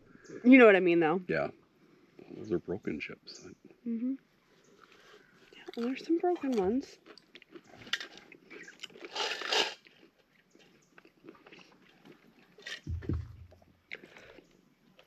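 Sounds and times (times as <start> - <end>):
chewing crunchy chips: 4.8 - 15.0
low thump: 12.9 - 13.6.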